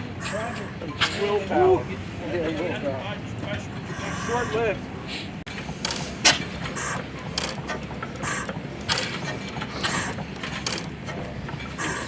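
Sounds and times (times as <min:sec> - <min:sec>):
antique gas engine turning over: 0:05.5 - 0:12.0
sharp mechanical clicks: 0:05.6 - 0:12.0.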